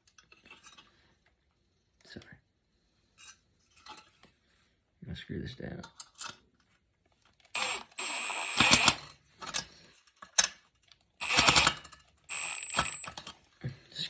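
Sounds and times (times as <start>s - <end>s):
cordless drill whining: 7.5s - 9.1s, 11.2s - 13.3s.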